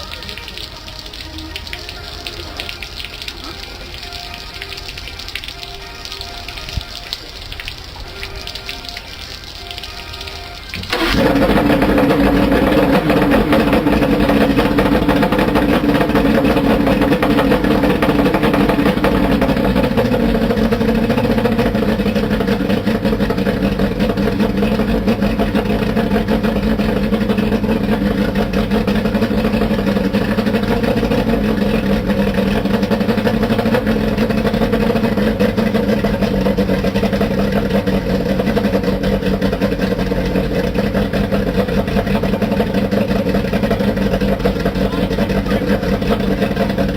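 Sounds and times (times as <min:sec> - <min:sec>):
outboard motor idling: 0:10.7 - 0:46.9.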